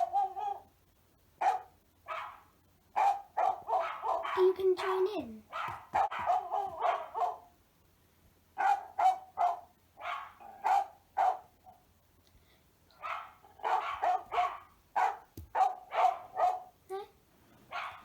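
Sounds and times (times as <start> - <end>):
dog barking: 0.0 - 0.7, 1.4 - 7.5, 8.6 - 11.8, 13.0 - 16.8, 17.7 - 18.0.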